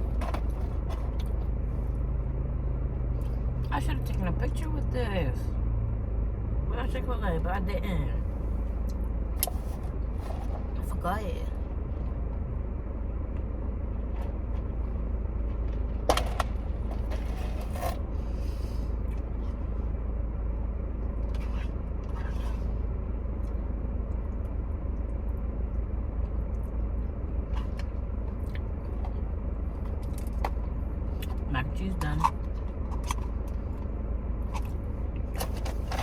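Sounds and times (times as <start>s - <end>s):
steady low hum: 0.0s - 36.0s
utensil scraping food container: 16.9s - 18.1s.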